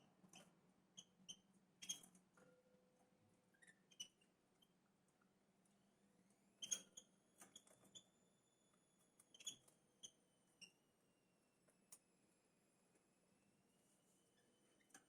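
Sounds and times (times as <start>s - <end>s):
small birds chirping: 9.2s - 10.8s.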